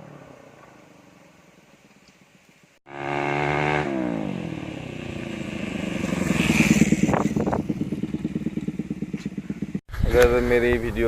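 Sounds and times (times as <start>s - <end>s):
motorcycle engine running: 2.9s - 9.8s.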